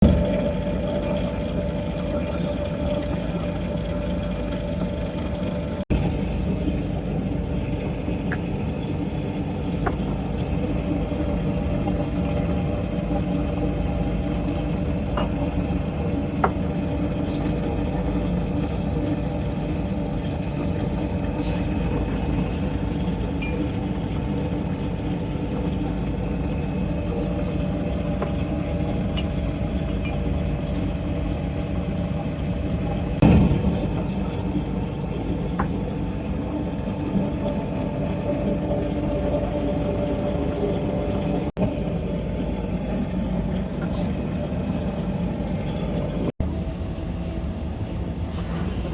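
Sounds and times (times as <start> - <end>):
machine hum with hiss: 0.0 - 48.9.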